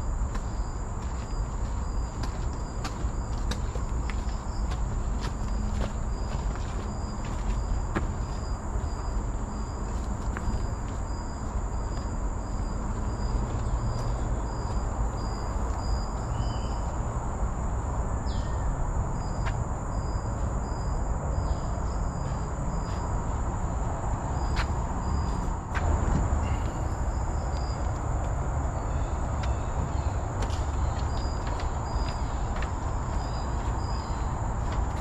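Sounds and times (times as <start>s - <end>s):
insect chirping: 0.0s - 35.0s
insect high-pitched buzz: 0.0s - 35.0s.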